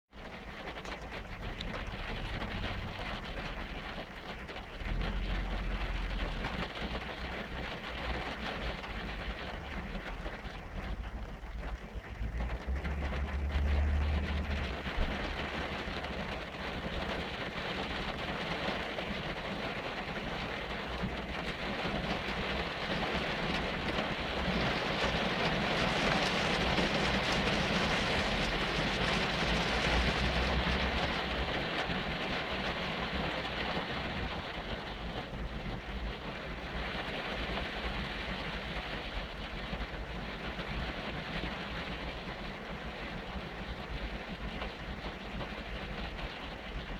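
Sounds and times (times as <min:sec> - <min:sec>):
rain and tyre spray hiss: 0:00.2 - 0:46.9
low rumble: 0:00.8 - 0:18.2.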